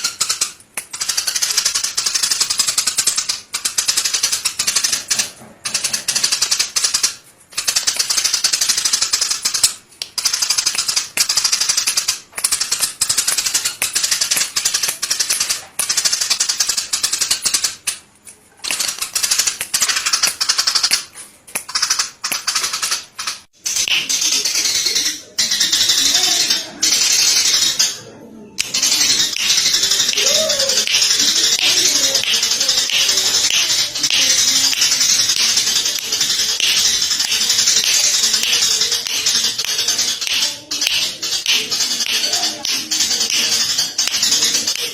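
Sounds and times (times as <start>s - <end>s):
songbird rattling trills: 28.7s - 44.9s.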